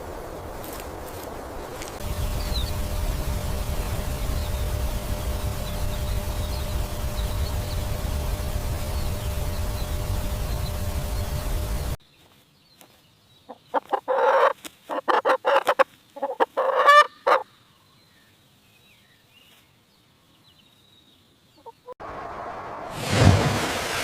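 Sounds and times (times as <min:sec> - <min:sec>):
chicken clucking: 0:13.5 - 0:17.5.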